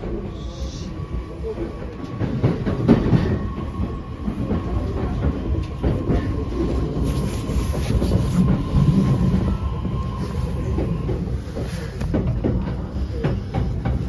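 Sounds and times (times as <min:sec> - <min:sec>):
train wheels rumbling: 0:00.0 - 0:14.0
clacks over rail joints: 0:01.6 - 0:07.1, 0:10.6 - 0:14.0.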